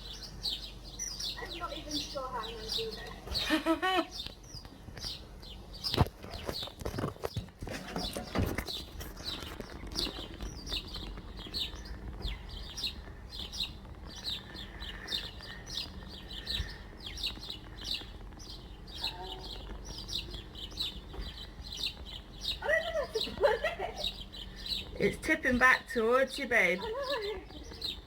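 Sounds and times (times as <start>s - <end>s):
small birds chirping: 0.0s - 28.0s
low background rumble: 7.7s - 28.0s.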